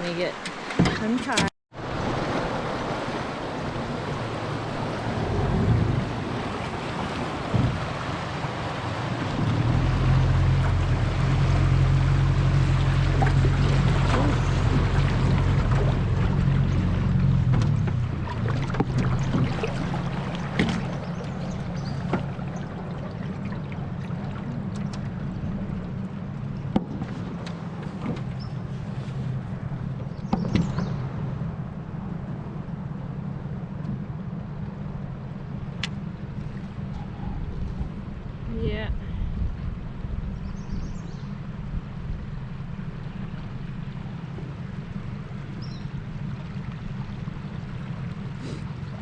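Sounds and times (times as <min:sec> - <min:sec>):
outboard motor humming: 0:00.0 - 0:49.0
water noise: 0:00.0 - 0:49.0
wind: 0:00.0 - 0:49.0
knocks against boat: 0:00.4 - 0:01.5, 0:07.0 - 0:08.3, 0:17.4 - 0:22.7, 0:26.7 - 0:28.6, 0:30.0 - 0:31.0.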